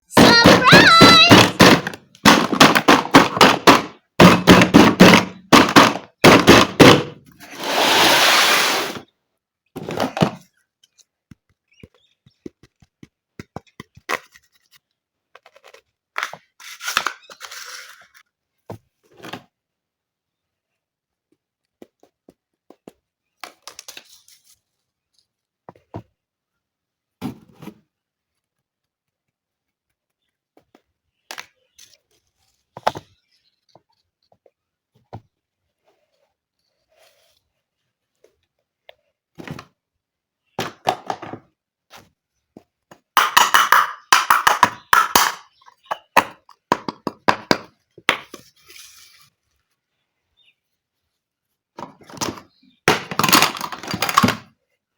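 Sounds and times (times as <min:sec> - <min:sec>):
plastic pieces knocking: 0:00.1 - 0:07.3, 0:40.5 - 0:41.5, 0:42.9 - 0:48.5, 0:51.8 - 0:54.6.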